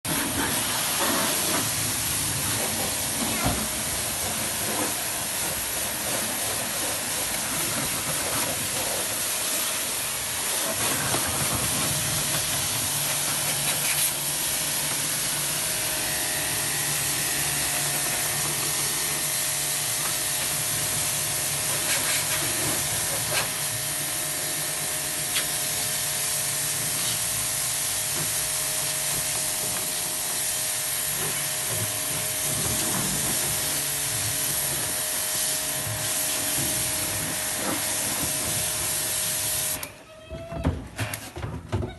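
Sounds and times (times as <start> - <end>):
water spray hissing: 0.1 - 39.9
motor hum: 9.8 - 21.8.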